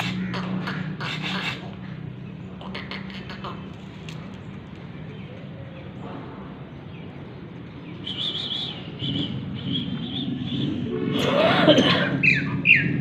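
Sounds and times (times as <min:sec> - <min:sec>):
small birds chirping: 0:01.2 - 0:10.8.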